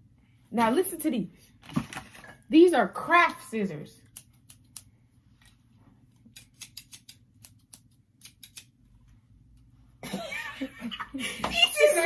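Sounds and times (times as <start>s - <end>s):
scissors snipping: 4.0s - 4.9s, 6.2s - 8.8s.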